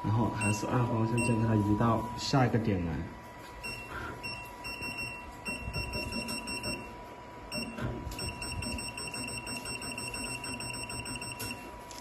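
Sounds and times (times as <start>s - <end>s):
short high beeps: 7.5s - 11.6s.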